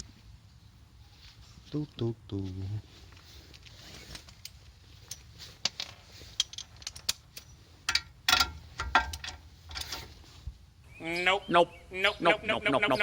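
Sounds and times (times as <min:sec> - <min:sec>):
light metallic clicks and knocks: 0:03.5 - 0:10.2.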